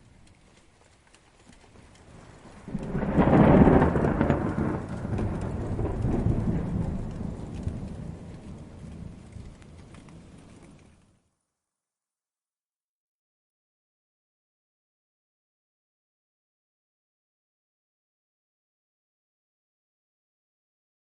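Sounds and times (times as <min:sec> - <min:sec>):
steady rain: 0:00.0 - 0:11.3
distant thunder rolling: 0:02.0 - 0:11.0.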